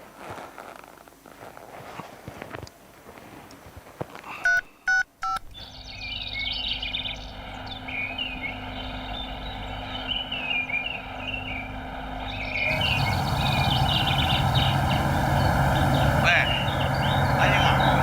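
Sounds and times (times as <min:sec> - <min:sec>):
telephone keypad beeps: 0:04.4 - 0:05.4
high twittering chirps: 0:05.7 - 0:18.0
steady low hum: 0:06.6 - 0:18.0.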